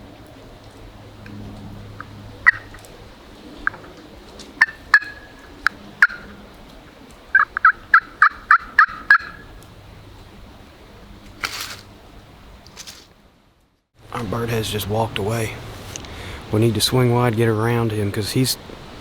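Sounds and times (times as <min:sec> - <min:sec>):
turkey pot call clucks: 0:02.4 - 0:02.8, 0:04.6 - 0:06.3, 0:07.3 - 0:09.5
turkey pot call yelps: 0:02.4 - 0:02.8, 0:04.6 - 0:06.3, 0:07.3 - 0:09.6
short rush of noise: 0:11.4 - 0:11.9.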